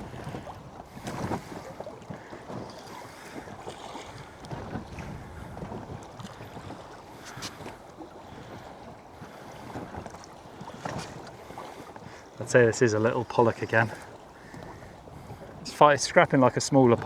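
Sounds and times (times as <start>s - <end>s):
water lapping against boat hull: 0.0s - 17.0s
wind buffeting microphone: 0.0s - 17.0s.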